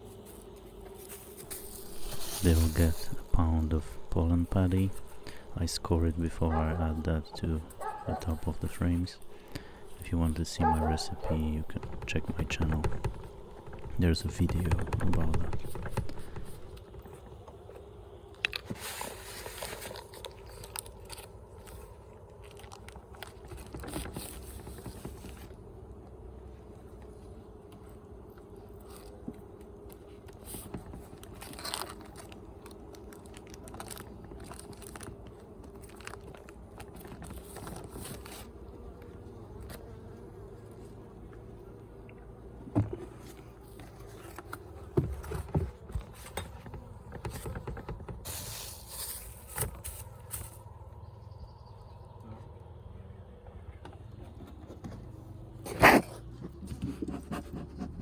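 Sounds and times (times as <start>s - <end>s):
honey bees humming: 0.0s - 20.2s, 23.0s - 55.5s
scrapes and clicks on hive frames: 0.1s - 20.7s, 23.3s - 41.5s.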